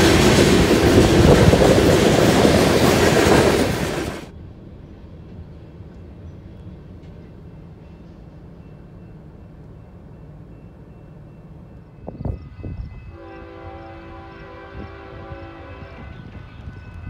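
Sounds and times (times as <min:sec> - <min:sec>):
freight train cars rumbling past: 0:00.0 - 0:17.0
distant locomotive horn chord: 0:13.0 - 0:16.8.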